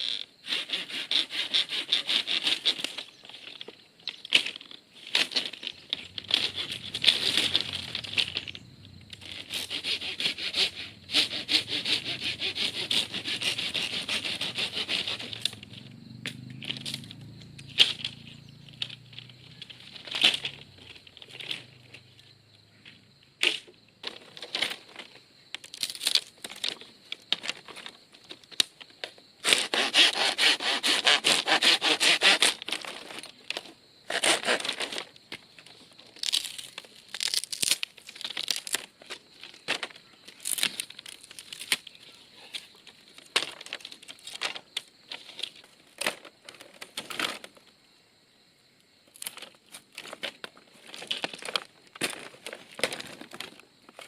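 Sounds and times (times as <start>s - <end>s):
hand saw cutting bamboo: 0.4s - 3.1s, 6.3s - 8.4s, 9.2s - 15.6s, 29.4s - 32.9s, 34.1s - 35.0s
bamboo knocking and clattering: 22.8s - 29.2s, 34.6s - 42.0s, 42.8s - 47.5s, 49.2s - 54.0s.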